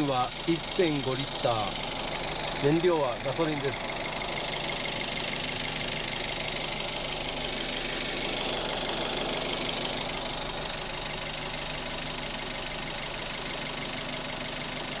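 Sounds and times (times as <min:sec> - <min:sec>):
truck engine idling: 0:00.0 - 0:13.7.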